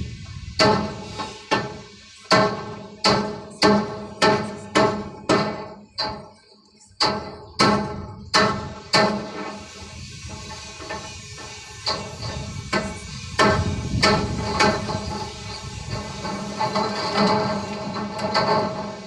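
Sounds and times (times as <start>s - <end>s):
hammer striking metal: 0.6s - 6.2s.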